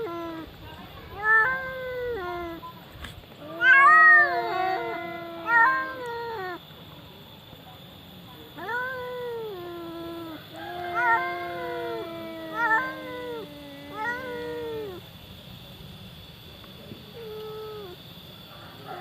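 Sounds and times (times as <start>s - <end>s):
cats yowling: 0.0s - 2.7s, 3.4s - 6.7s, 8.6s - 15.1s, 17.1s - 18.0s.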